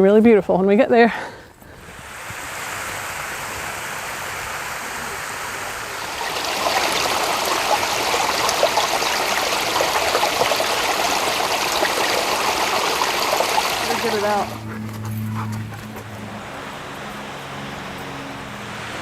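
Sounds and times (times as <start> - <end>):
creek water flowing: 1.8 - 19.0.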